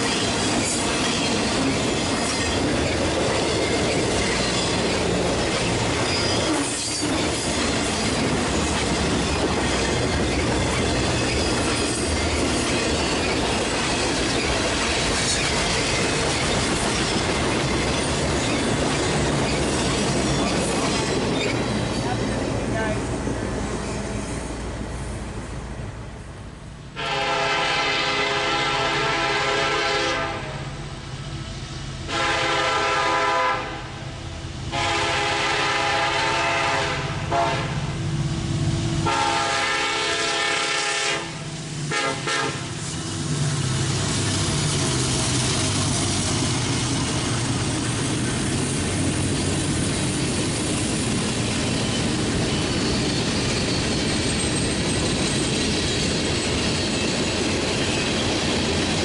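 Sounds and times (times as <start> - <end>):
freight cars rumbling and clattering: 0.0 - 26.4, 42.5 - 59.0
locomotive engine: 0.0 - 26.6, 28.7 - 59.0
locomotive horn blasts: 27.0 - 30.6, 32.1 - 33.9, 34.7 - 37.9, 39.0 - 42.7.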